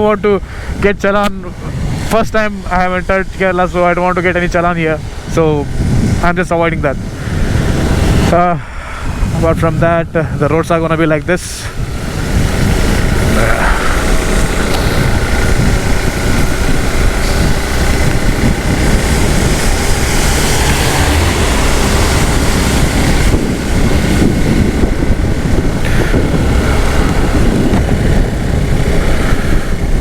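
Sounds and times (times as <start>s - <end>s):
motorcycle engine roar: 0.0s - 30.0s
road noise: 0.0s - 30.0s
wind rushing over microphone: 0.0s - 30.0s.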